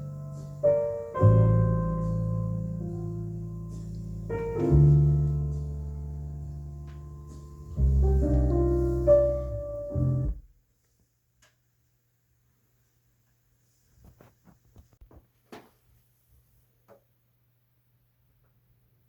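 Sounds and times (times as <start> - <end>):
solo piano through loudspeakers: 0.0 - 10.5.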